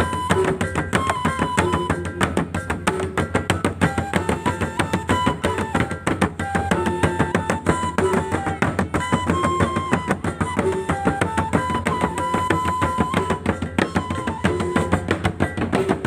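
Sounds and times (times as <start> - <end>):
fast interlocking drumming: 0.0 - 16.0
wind instrument melody: 0.0 - 16.0.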